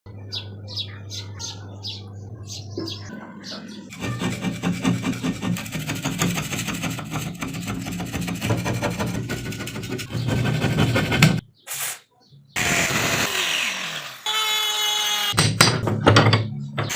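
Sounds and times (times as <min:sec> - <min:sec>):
rasping metal scrape: 0:03.8 - 0:11.4.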